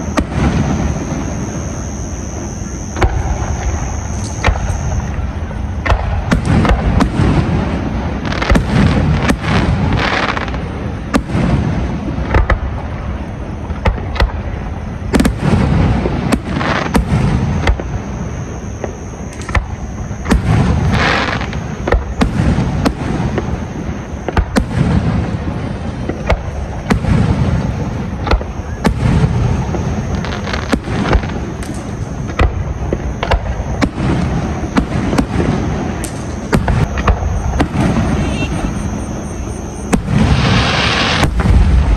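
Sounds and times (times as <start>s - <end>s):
fireworks bangs and booms: 0.0s - 41.9s.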